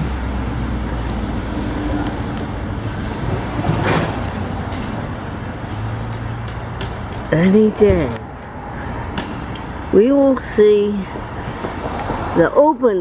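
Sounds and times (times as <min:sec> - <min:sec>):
vehicle swishing past: 0:00.0 - 0:10.0
road traffic with engine hum: 0:00.0 - 0:13.0.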